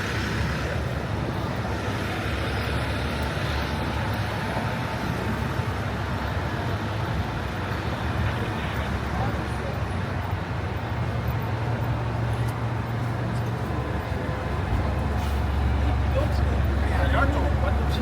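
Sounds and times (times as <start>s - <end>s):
city street traffic: 0.0s - 18.0s.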